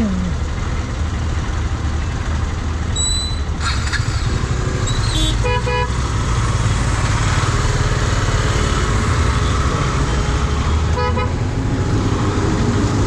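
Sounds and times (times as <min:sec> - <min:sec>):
engines rumbling in traffic: 0:00.0 - 0:13.0
vehicle horns honking: 0:04.9 - 0:06.1, 0:10.9 - 0:11.5.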